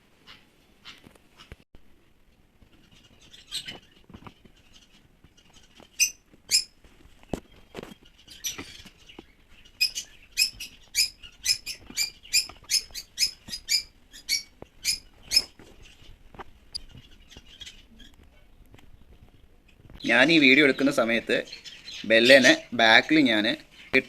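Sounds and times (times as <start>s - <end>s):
small bird chirping: 2.7s - 22.9s.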